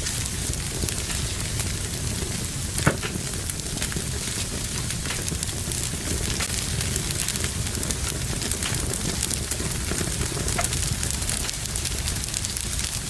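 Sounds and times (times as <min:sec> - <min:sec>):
fire crackling in a fireplace: 0:00.0 - 0:13.0
loud pop from fire: 0:00.0 - 0:13.0.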